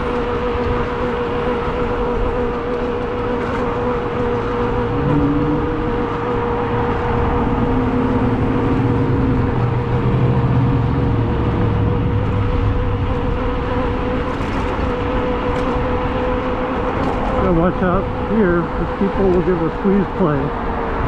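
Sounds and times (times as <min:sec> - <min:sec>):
steady motor hum: 0:00.0 - 0:21.0
vehicles passing: 0:00.0 - 0:21.0
wind and road noise: 0:00.0 - 0:21.0.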